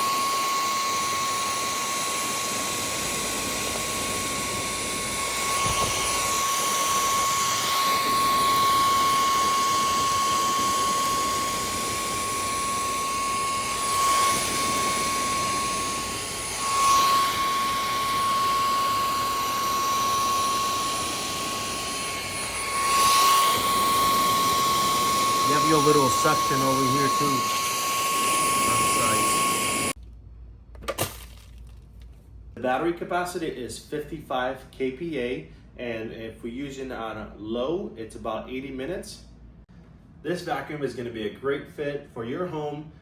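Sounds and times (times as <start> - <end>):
vacuum cleaner motor whine: 0.0 - 30.0.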